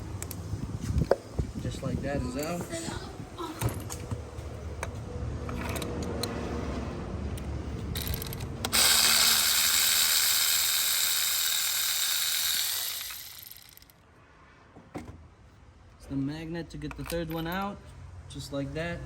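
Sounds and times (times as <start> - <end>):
air tool hissing: 8.8 - 13.8.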